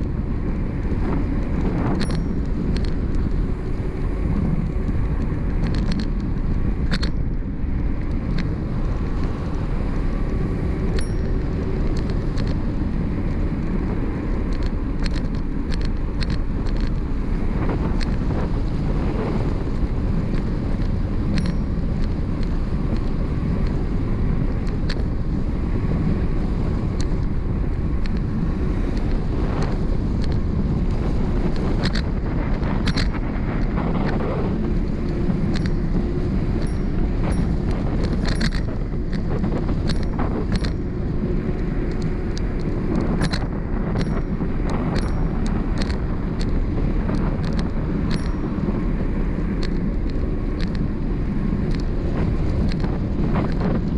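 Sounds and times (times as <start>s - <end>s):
low road rumble: 0.0s - 53.9s
wind buffeting microphone: 0.0s - 53.9s
sharp clicks: 36.6s - 40.9s, 41.6s - 48.5s.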